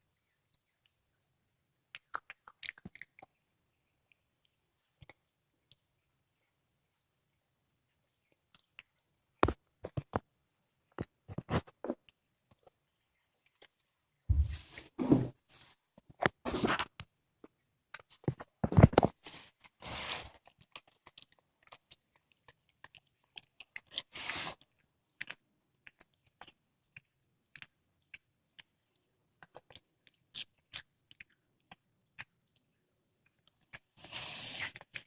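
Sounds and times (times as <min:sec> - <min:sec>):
cat chewing and crunching bones: 0:17.9 - 0:35.0.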